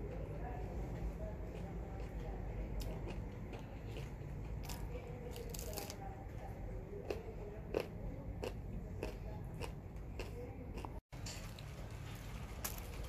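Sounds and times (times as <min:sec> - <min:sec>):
person chewing soft food: 0:02.8 - 0:05.9, 0:07.0 - 0:11.6.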